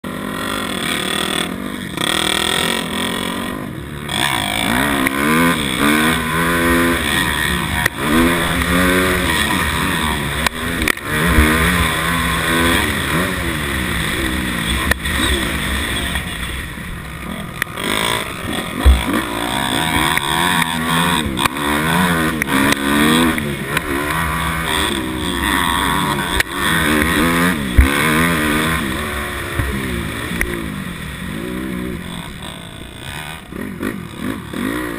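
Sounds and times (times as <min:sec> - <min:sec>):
dirt bike engine revving: 0:00.0 - 0:34.9
sharp knocks: 0:18.8 - 0:19.3.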